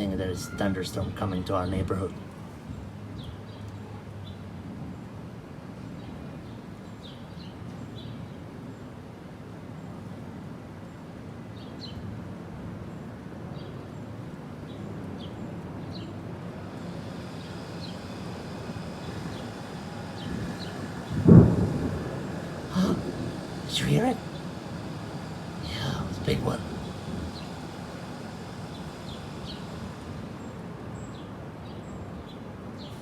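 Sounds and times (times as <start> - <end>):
birds chirping: 14.7 - 33.0
thunder rumbling: 16.6 - 30.9
loud thunder clap: 20.3 - 25.6.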